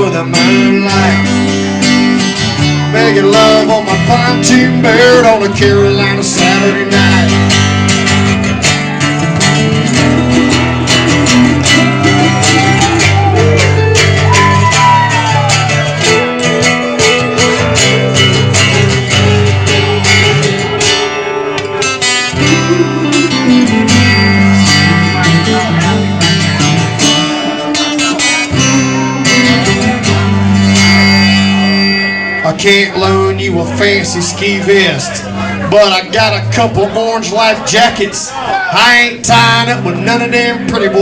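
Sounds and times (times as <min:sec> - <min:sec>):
gliding lead guitar line: 0:00.0 - 0:41.0
strummed guitar: 0:00.0 - 0:41.0
steady drum beat: 0:08.2 - 0:21.0.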